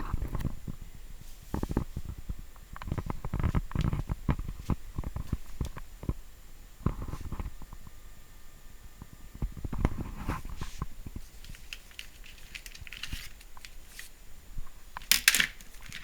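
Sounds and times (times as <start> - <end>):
objects being handled: 9.7 - 14.2, 15.0 - 16.0.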